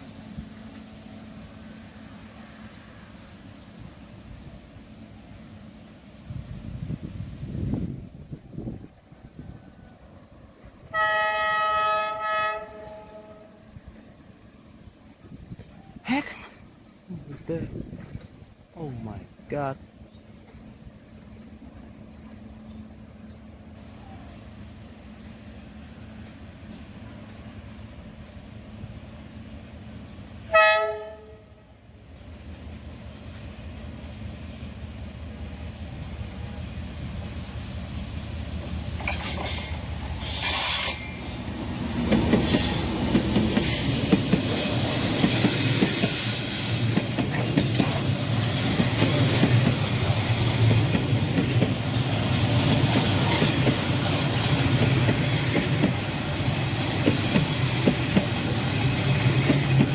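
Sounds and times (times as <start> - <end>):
train rumble passing: 0.0 - 16.0, 16.6 - 59.9
locomotive horn blast: 10.8 - 13.7, 30.5 - 31.6
wheel clatter and squeal on rails: 38.3 - 59.9.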